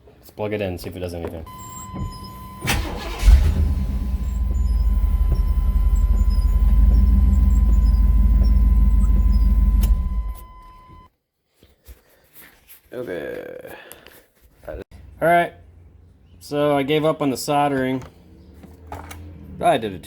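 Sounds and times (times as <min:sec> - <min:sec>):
truck engine running: 0:01.5 - 0:11.0
high-pitched electronic warning tone: 0:04.2 - 0:11.1.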